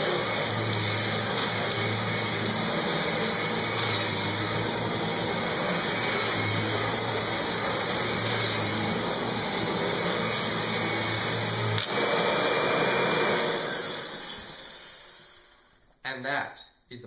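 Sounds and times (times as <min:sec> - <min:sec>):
vacuum cleaner running: 0:00.0 - 0:15.7.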